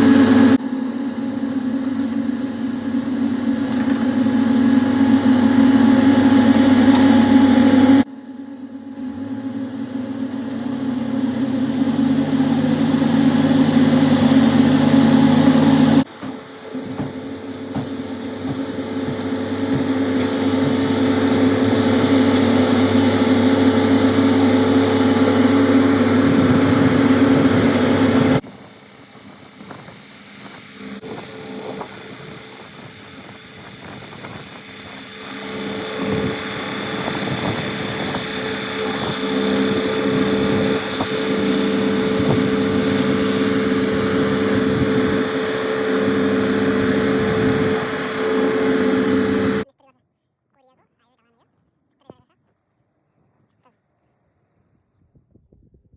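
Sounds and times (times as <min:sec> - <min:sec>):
engine noise: 0:00.0 - 0:49.6.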